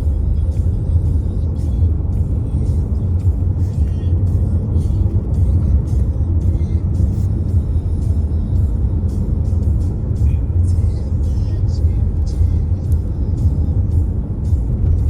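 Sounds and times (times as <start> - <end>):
car rumbling on the move: 0.0 - 15.0
music playing: 0.0 - 15.0.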